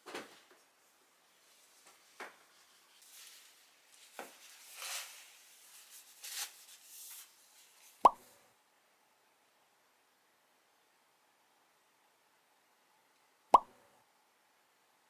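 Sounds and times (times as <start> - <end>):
rustling and handling noises: 0.0 - 8.0.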